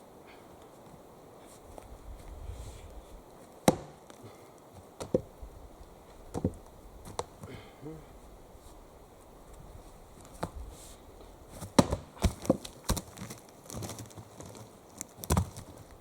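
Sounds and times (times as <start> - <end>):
axe chopping wood: 3.6 - 4.2, 5.0 - 5.3, 11.6 - 13.1.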